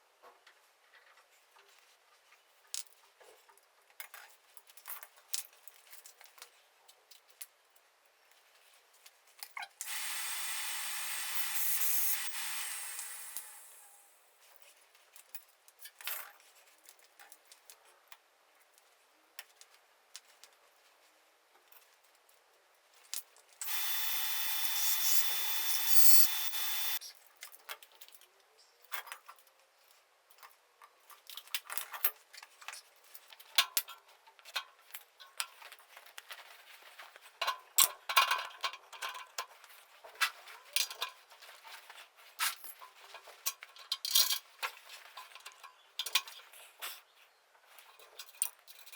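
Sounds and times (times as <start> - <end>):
steady hissing: 9.8 - 14.1, 23.6 - 27.0.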